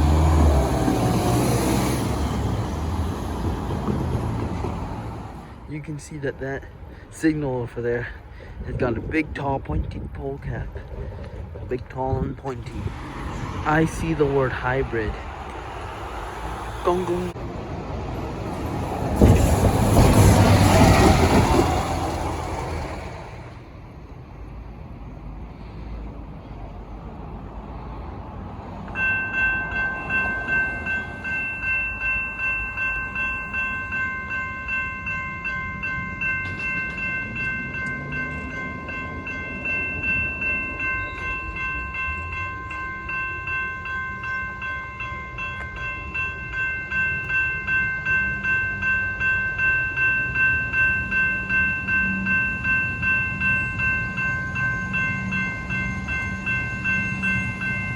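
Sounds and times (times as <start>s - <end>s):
level crossing bell ringing: 29.0s - 57.9s.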